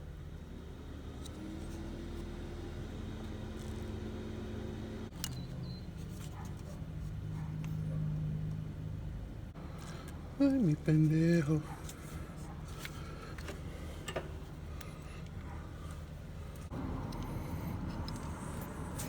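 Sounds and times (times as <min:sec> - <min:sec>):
car engine idling: 0:07.3 - 0:19.0.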